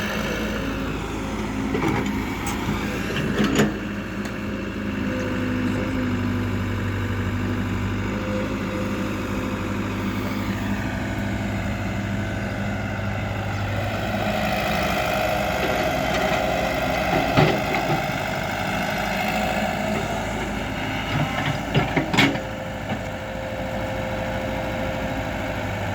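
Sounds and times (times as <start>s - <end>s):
heavy diesel engine running: 0.0s - 25.9s.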